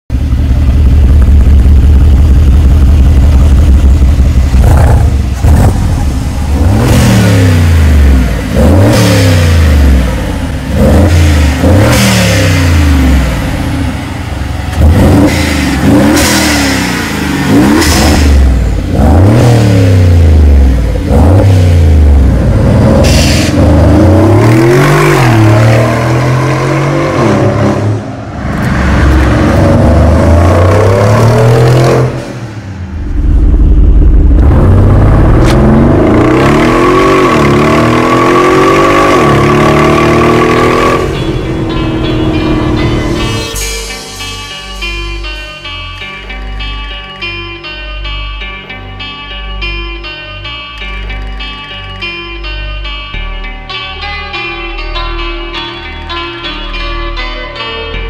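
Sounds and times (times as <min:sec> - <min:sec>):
car engine revving: 0:00.1 - 0:43.6.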